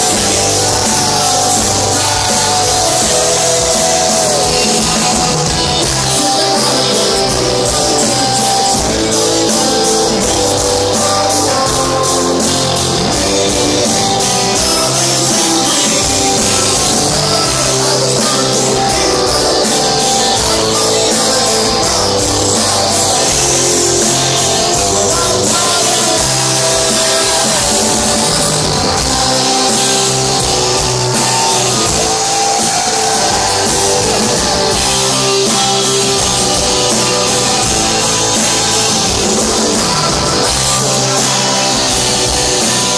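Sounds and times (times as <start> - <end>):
rock band playing live: 0.0 - 42.9.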